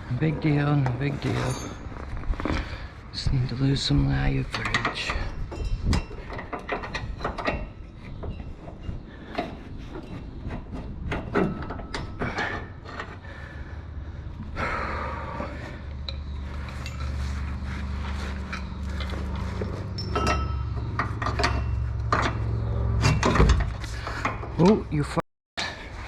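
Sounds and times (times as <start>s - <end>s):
metal scraping: 0.0s - 13.6s, 15.3s - 24.8s
metal tools clanking: 0.1s - 2.8s, 3.6s - 13.2s, 15.5s - 25.8s.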